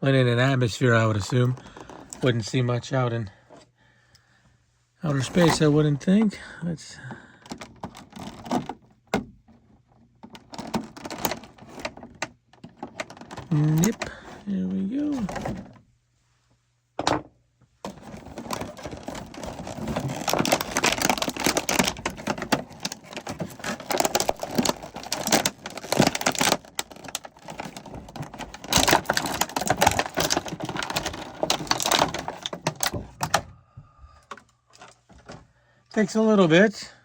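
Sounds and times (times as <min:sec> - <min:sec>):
plastic packaging crackling: 0:01.0 - 0:02.4, 0:05.0 - 0:06.1, 0:07.4 - 0:08.8, 0:09.9 - 0:15.8, 0:17.8 - 0:33.4.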